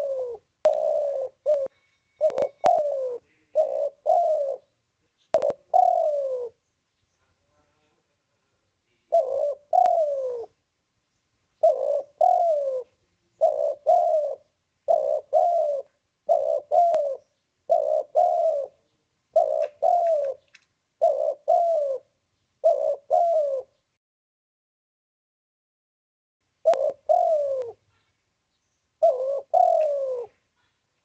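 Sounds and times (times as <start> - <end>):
dove cooing: 0.0 - 6.6, 9.0 - 10.6, 11.6 - 23.8, 26.6 - 28.2, 29.0 - 30.8.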